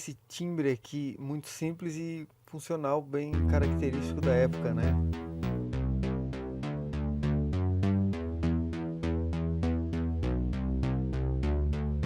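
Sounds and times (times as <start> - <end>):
synthesizer bass line: 3.4 - 12.0.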